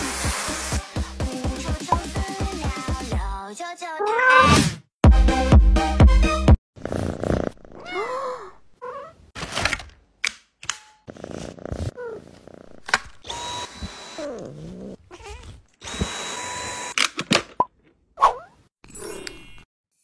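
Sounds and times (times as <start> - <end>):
cat meowing: 7.8 - 9.2
vacuum cleaner whine: 13.2 - 14.3, 15.8 - 16.9.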